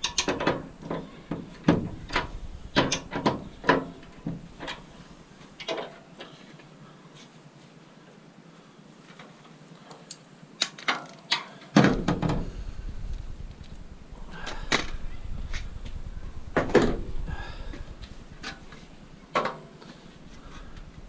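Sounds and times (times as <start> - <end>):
low rumble: 1.8 - 5.3, 12.0 - 19.1.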